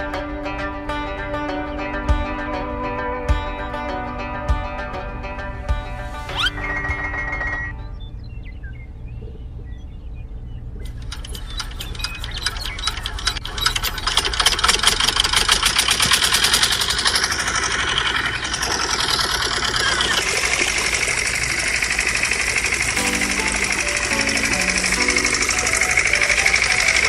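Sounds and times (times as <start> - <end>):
small engine knocking: 10.9 - 27.0.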